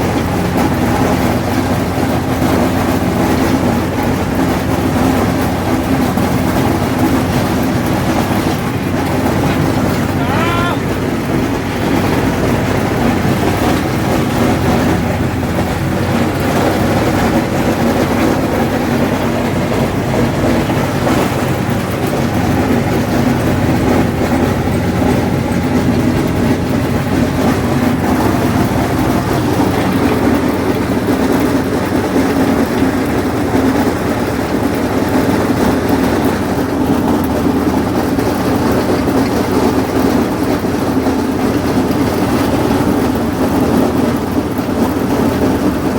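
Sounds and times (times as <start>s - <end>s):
tractor diesel engine under load: 0.0s - 45.9s.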